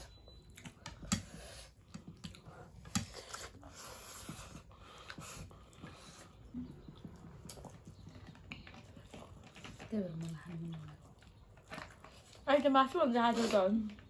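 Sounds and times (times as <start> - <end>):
person chewing food: 0.0 - 12.4.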